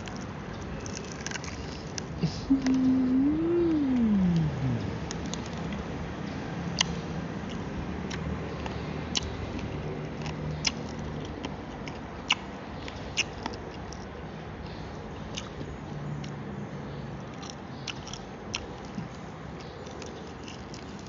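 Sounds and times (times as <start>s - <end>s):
crunchy chewing: 0.0s - 2.8s, 6.8s - 14.2s, 15.3s - 16.4s, 17.2s - 21.0s
wet chewing: 0.0s - 2.8s, 7.5s - 14.1s, 17.4s - 21.0s.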